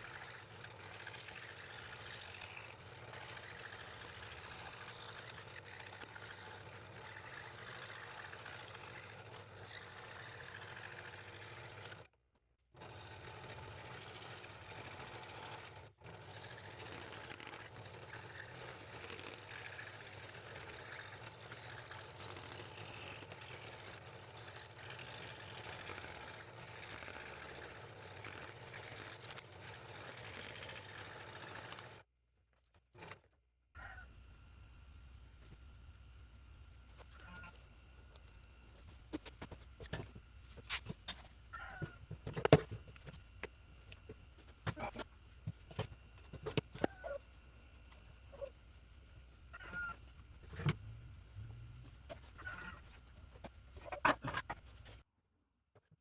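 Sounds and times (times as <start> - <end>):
scroll saw cutting wood: 0.0 - 12.1, 12.8 - 32.0.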